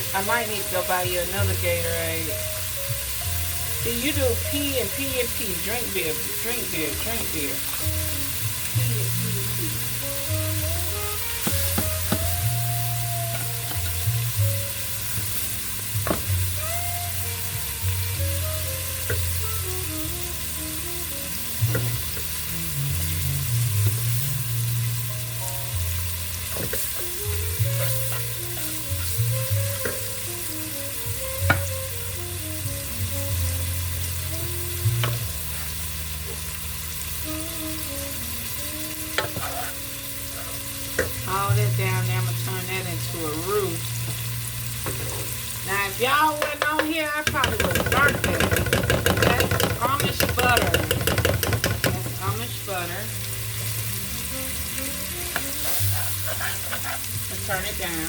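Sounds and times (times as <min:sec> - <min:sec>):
chicken sizzling in a pan: 0:00.0 - 0:58.0
music with bass line: 0:00.8 - 0:45.8, 0:47.3 - 0:56.3
utensil tapping a pan: 0:11.4 - 0:12.4, 0:46.3 - 0:52.4.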